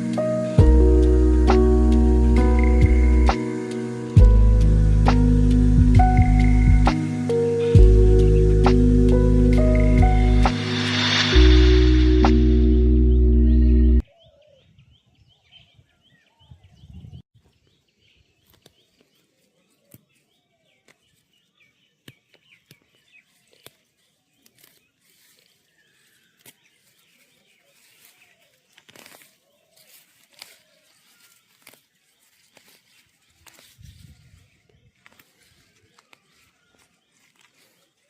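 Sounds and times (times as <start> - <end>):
low rumble: 7.8 - 14.0
small birds chirping: 13.5 - 38.0.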